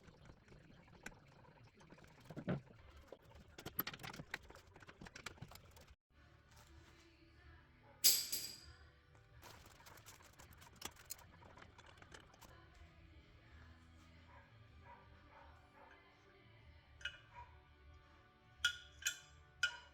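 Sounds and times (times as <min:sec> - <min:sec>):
tools clicking and knocking: 0:03.4 - 0:05.8, 0:08.0 - 0:08.6, 0:18.6 - 0:19.9
sharp metallic clank: 0:08.0 - 0:08.7.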